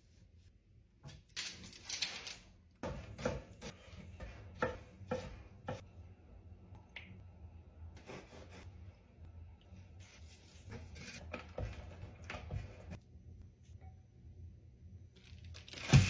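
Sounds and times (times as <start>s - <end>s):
knife chopping on cutting board: 2.8s - 5.8s.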